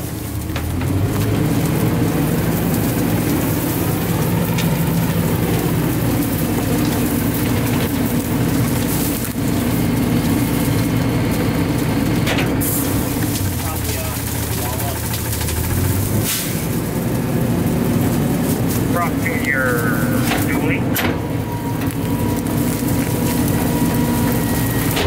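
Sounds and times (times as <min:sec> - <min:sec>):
garbage truck engine running: 0:00.0 - 0:25.0
hissing rattling noise: 0:12.6 - 0:20.8.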